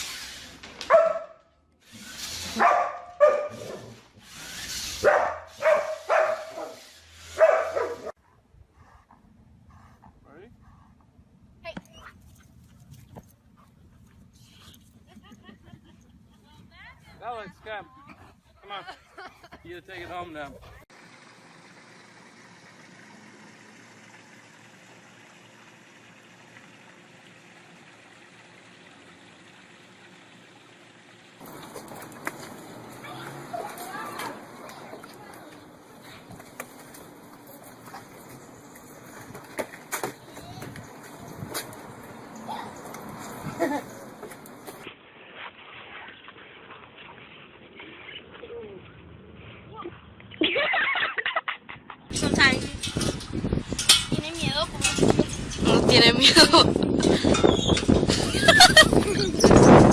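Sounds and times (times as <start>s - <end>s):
dog barking: 0.9s - 1.4s, 2.5s - 3.8s, 5.0s - 6.8s, 7.4s - 8.1s.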